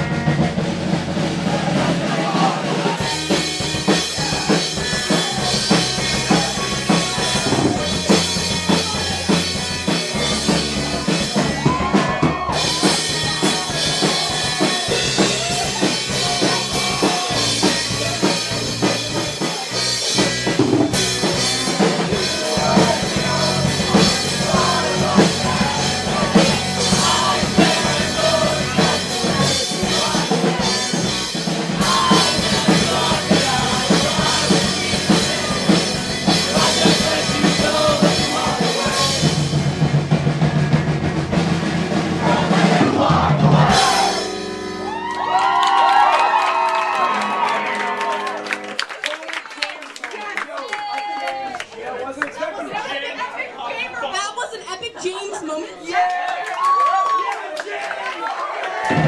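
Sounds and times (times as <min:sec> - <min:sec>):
drum kit: 0:00.0 - 0:47.8, 0:58.8 - 0:59.0
live band playing: 0:00.0 - 0:49.7.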